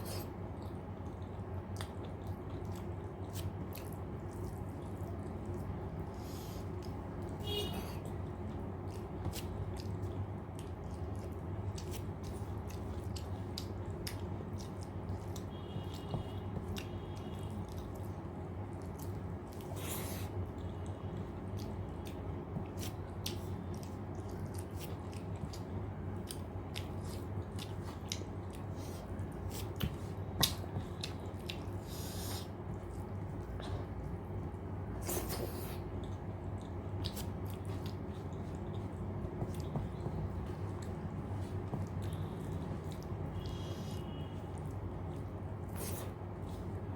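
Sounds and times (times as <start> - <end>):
steady low hum: 0.0 - 46.9
wet chewing with mouth clicks: 0.0 - 46.9.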